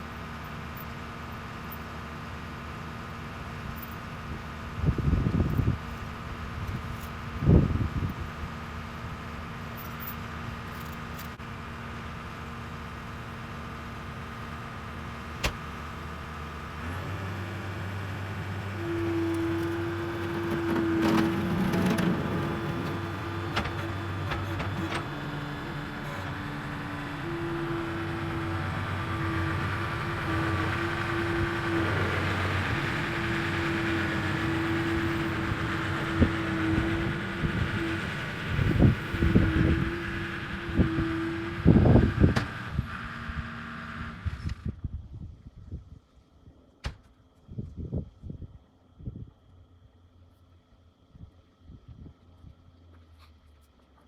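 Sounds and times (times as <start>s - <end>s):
engine running: 0.0s - 44.8s.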